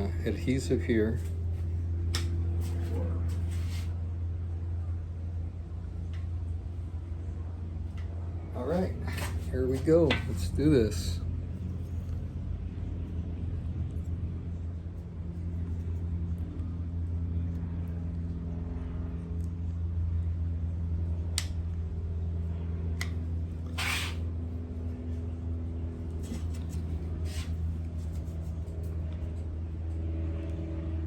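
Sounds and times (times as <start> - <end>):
low mechanical hum: 0.0 - 31.0
short scrape: 3.5 - 3.9, 23.7 - 24.3, 26.2 - 27.6.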